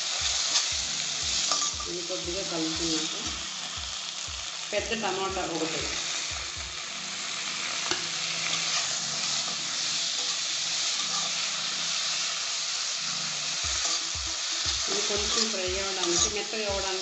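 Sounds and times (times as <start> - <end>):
tomato sizzling in hot oil: 0.0 - 17.0
spatula stirring and scraping: 7.9 - 11.5.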